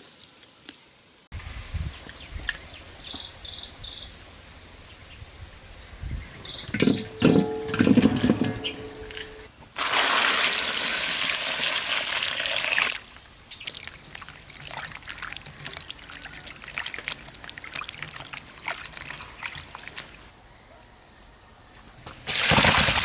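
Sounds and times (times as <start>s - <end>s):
liquid pouring: 9.8s - 20.3s
drips and clicks: 13.0s - 20.3s.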